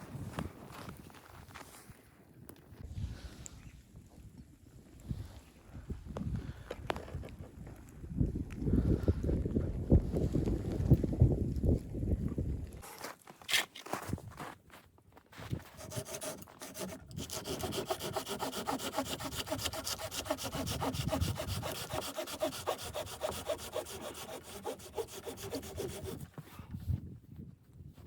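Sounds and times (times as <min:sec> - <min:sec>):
saw cutting through wood: 0:15.7 - 0:26.3.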